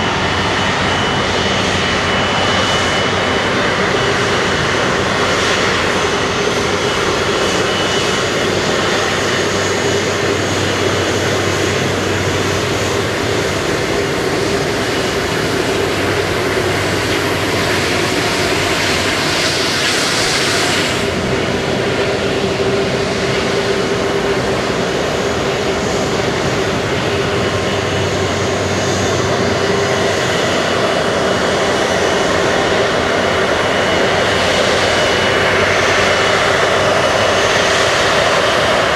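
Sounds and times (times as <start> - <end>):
jet engines running: 0.0 - 38.9.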